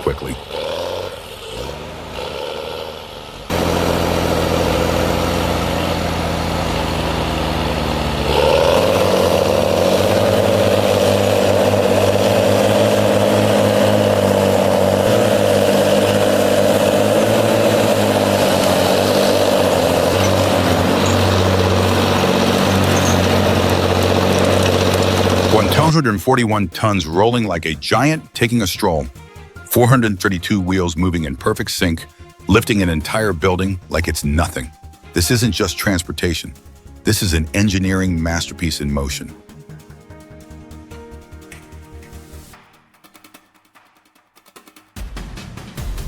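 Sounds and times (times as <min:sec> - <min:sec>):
heavy vehicle engine running: 0:00.0 - 0:31.3.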